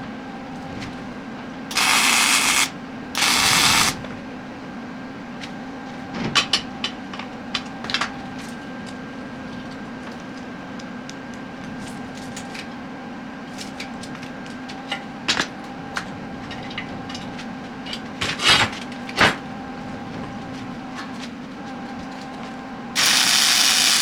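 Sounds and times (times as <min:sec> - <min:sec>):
steady hum: 0:00.0 - 0:04.6, 0:22.7 - 0:24.0.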